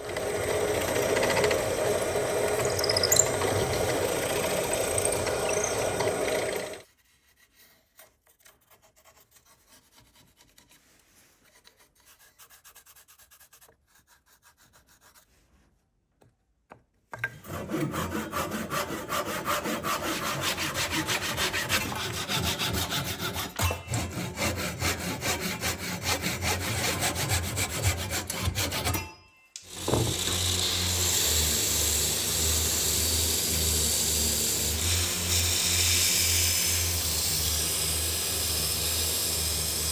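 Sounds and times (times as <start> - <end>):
power tool running: 0.0 - 6.8, 29.6 - 39.9
rapid rasping strokes: 17.4 - 29.1.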